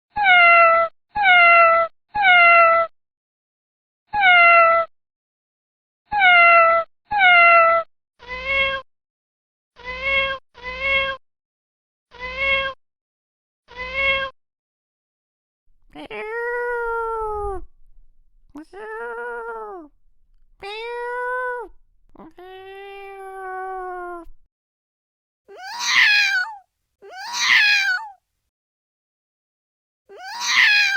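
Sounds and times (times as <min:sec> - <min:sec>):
cat meowing: 0:13.7 - 0:14.3, 0:15.9 - 0:24.4, 0:25.5 - 0:28.2, 0:30.1 - 0:30.9.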